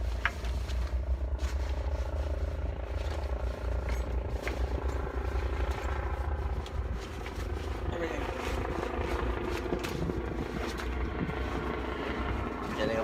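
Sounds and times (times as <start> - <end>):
engine drone: 0.0 - 13.0
wind rumble on microphone: 0.0 - 13.0.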